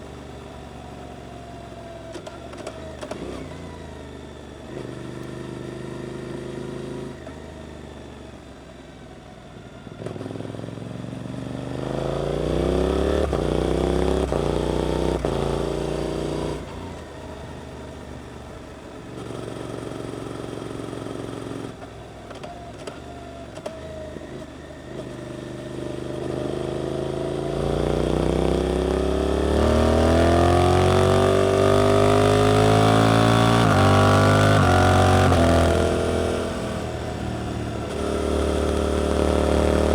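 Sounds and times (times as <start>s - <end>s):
motorcycle engine revving: 10.0s - 17.4s, 23.6s - 39.9s.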